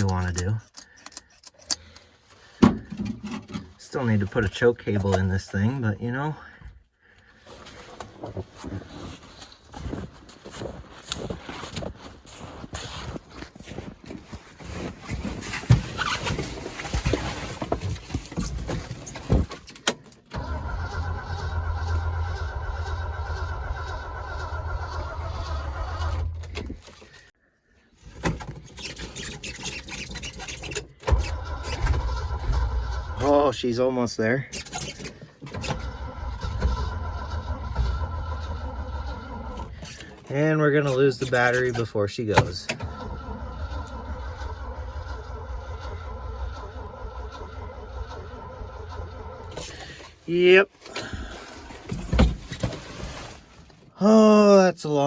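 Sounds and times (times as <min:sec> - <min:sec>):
starter cranking engine: 0:19.8 - 0:27.3, 0:28.8 - 0:33.6, 0:34.5 - 0:40.3, 0:40.9 - 0:50.2.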